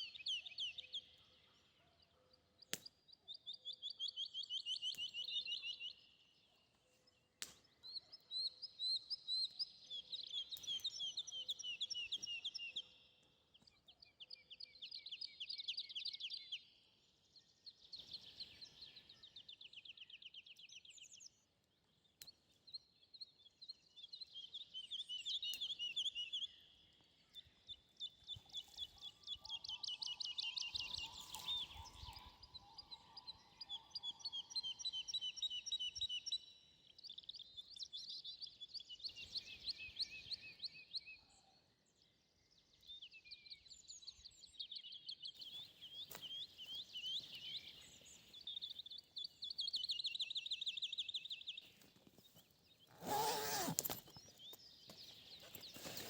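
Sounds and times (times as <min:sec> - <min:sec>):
songbird trilling: 0:52.8 - 0:56.0.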